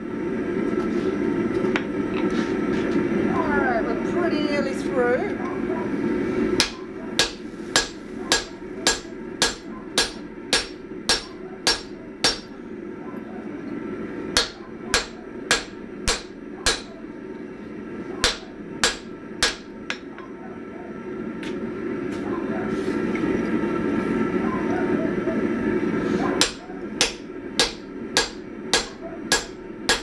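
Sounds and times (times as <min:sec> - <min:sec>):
steady low hum: 0:00.0 - 0:30.0
hammer ringing on anvil: 0:06.6 - 0:12.6, 0:14.4 - 0:17.0, 0:18.2 - 0:20.3, 0:26.4 - 0:30.0.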